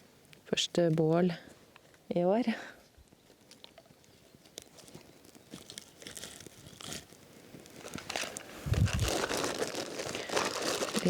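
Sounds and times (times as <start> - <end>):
rustling and crinkling: 3.0 - 11.0
small cracks and snaps: 3.4 - 11.0.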